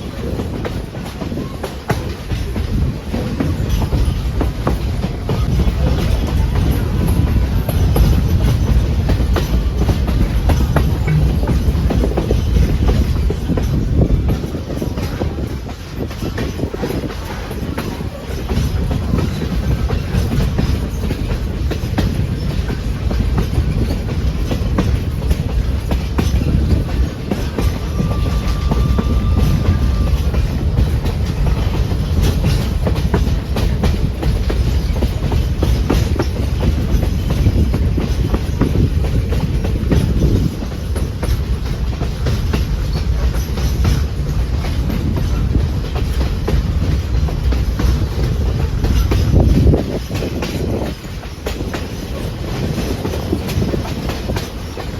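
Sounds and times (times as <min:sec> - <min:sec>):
train car rolling on track: 0:00.0 - 0:54.9
wheels clacking over rail joints: 0:00.0 - 0:54.9
faint high tone: 0:27.6 - 0:30.5.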